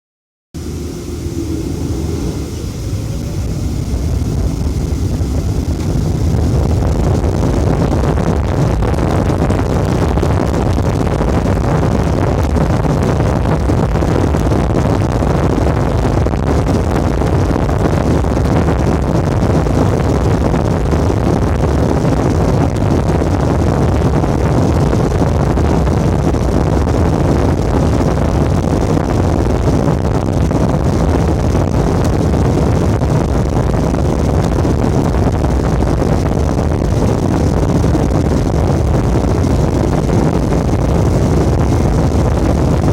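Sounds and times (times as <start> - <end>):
jet engines roaring at takeoff: 0.6 - 8.6.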